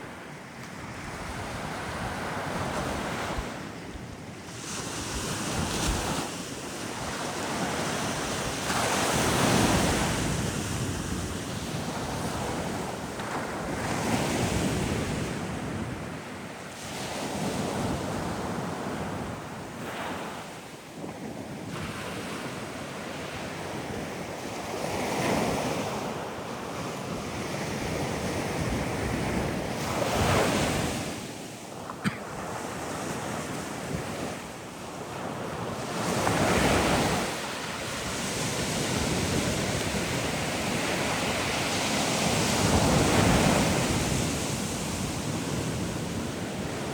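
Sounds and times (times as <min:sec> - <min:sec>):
wind on microphone: 0:16.9 - 0:46.9.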